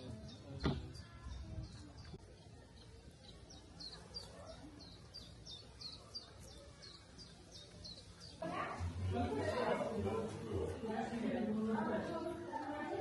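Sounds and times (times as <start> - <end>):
bird chirping: 0.0 - 9.1.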